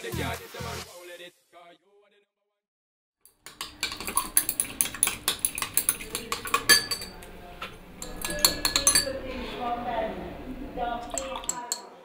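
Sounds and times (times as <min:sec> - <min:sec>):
glass rod clinking in beaker: 0:03.4 - 0:09.3, 0:11.0 - 0:11.9.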